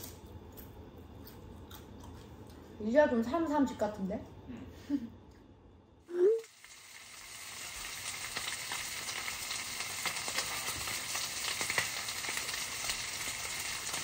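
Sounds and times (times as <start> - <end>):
pork sizzling in a pan: 6.1 - 14.0.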